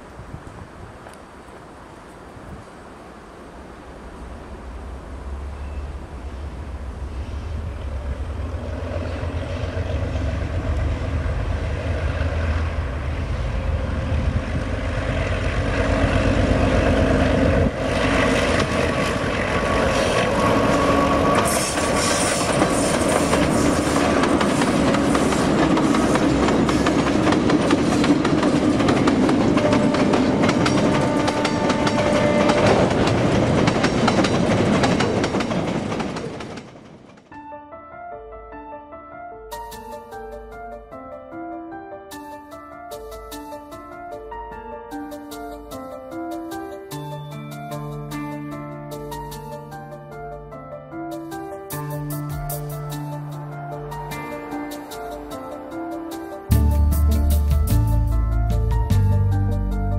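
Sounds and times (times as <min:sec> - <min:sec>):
diesel locomotives working: 0:00.4 - 0:36.9
wheels clacking over rail joints: 0:15.1 - 0:37.3.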